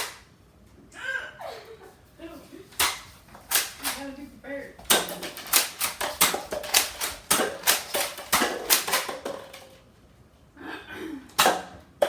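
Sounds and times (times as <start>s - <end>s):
toy blaster firing plastic clacks: 0.0s - 0.2s, 2.8s - 4.2s, 4.8s - 9.8s
darts striking targets: 2.8s - 4.1s, 4.8s - 9.7s, 11.4s - 11.8s.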